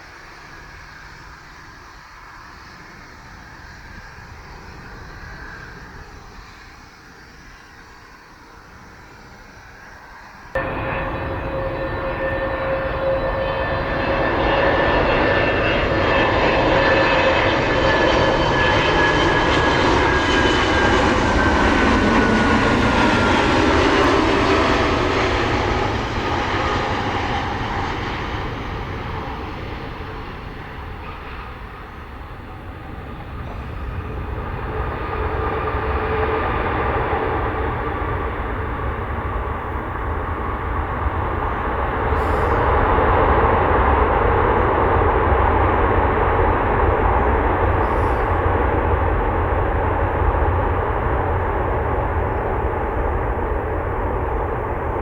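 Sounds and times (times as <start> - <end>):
jet airliner engines passing: 0.0 - 55.0.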